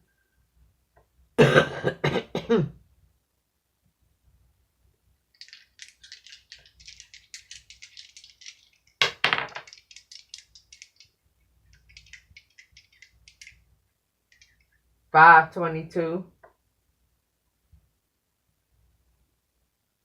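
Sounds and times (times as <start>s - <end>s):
dice clattering down: 5.4s - 11.1s, 11.7s - 13.6s
dice rattling in a hand: 5.4s - 13.7s, 14.3s - 14.7s.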